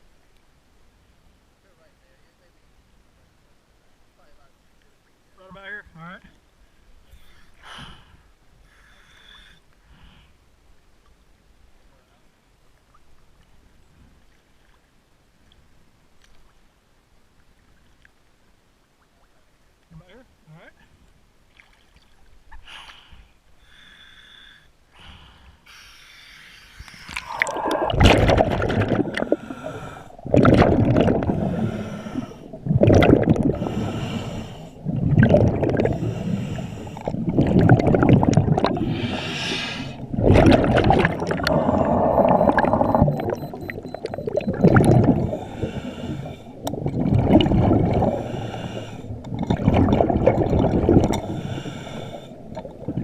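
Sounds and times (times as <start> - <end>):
diver breathing through regulator: 22.6 - 28.0, 28.8 - 43.9, 44.8 - 49.3, 50.6 - 52.6
bubbles bursting: 27.2 - 31.7, 32.5 - 33.8, 34.8 - 36.2, 37.0 - 45.9, 46.6 - 51.4, 52.4 - 53.0.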